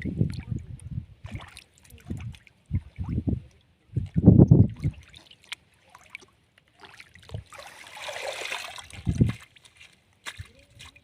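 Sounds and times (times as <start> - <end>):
heavy water slosh: 4.6 - 10.0
water running and pouring: 7.5 - 9.3.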